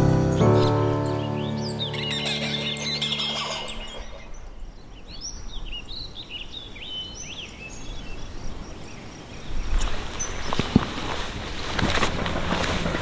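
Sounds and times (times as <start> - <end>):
small birds chirping: 0.3 - 12.0
low outdoor air rumble: 4.2 - 13.0.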